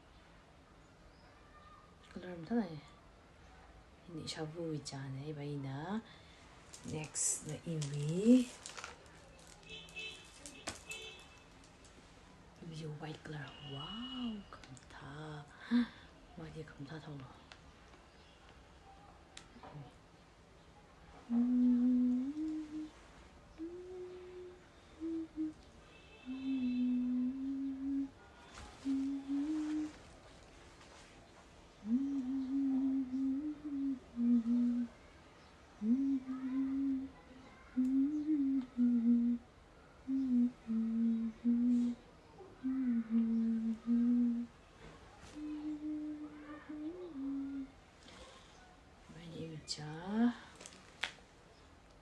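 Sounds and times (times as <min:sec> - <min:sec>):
person humming a slow tune: 0:21.2 - 0:28.2, 0:28.8 - 0:30.0, 0:31.8 - 0:35.0, 0:35.8 - 0:37.2, 0:37.8 - 0:39.5, 0:40.1 - 0:42.0, 0:42.6 - 0:44.5, 0:45.4 - 0:47.8.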